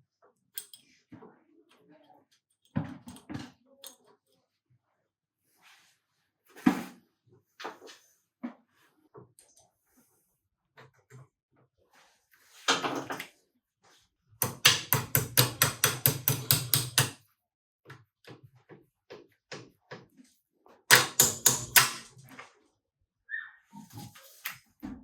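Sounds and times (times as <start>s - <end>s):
hammer tapping on metal: 14.4s - 17.2s, 20.9s - 22.1s.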